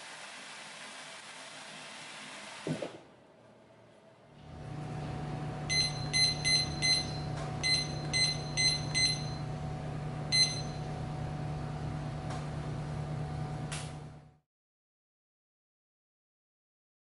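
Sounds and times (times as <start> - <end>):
microwave oven humming: 3.0 - 14.4
control panel key beeps: 5.7 - 9.4, 10.3 - 10.8.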